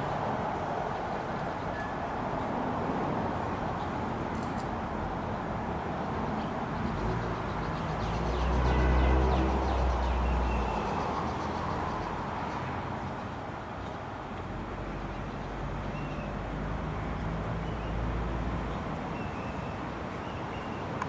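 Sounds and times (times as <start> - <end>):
outdoor traffic noise: 0.0 - 21.0.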